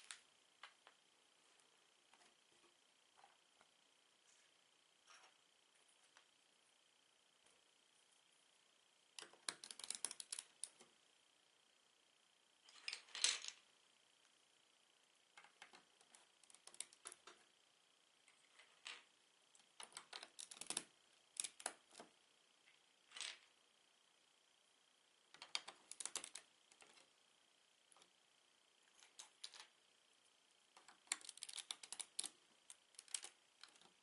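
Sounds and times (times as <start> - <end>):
plastic bricks clicking and rattling: 9.2 - 10.8, 19.8 - 21.8, 25.4 - 27.0, 30.8 - 33.9.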